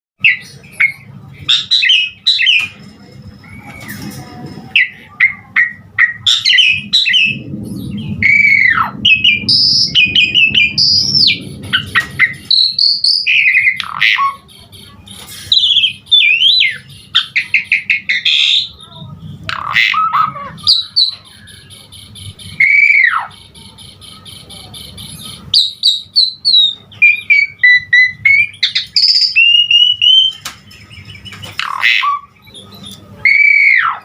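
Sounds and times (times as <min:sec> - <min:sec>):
low steady hum: 0:00.2 - 0:34.0
starling singing varied song: 0:03.4 - 0:34.0.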